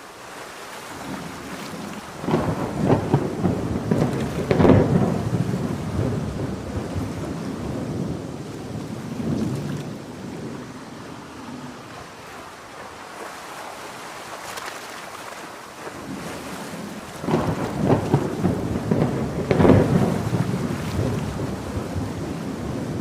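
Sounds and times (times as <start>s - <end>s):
heavy rain: 0.0s - 23.0s
crackling thunder peal: 1.0s - 11.0s, 16.9s - 23.0s
thunder rumbling: 1.0s - 12.2s, 16.0s - 23.0s.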